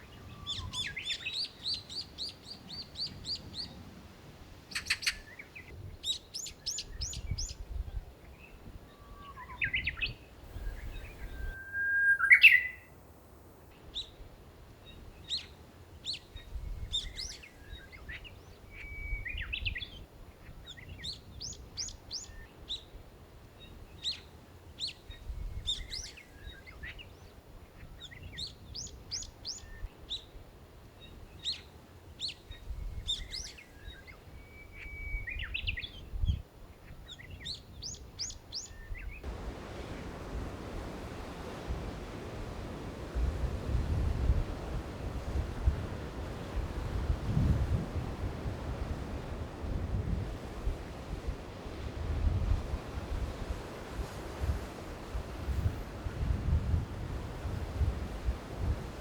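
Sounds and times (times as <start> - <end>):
small birds chirping: 0.0 - 3.8, 4.7 - 7.6, 8.3 - 12.9
bird call rising in pitch: 10.6 - 12.9.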